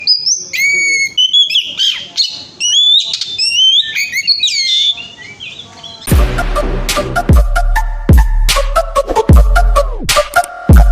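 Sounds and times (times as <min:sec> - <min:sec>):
bird singing whistled phrases: 0:00.0 - 0:06.1
electronic music with bass beats: 0:06.1 - 0:10.9.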